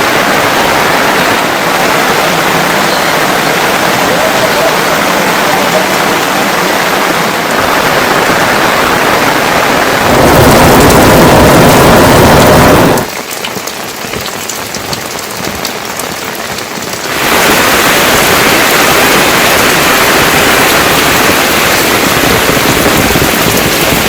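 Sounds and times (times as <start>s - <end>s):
heavy rain: 0.0s - 24.0s
raindrops ticking: 12.8s - 24.0s.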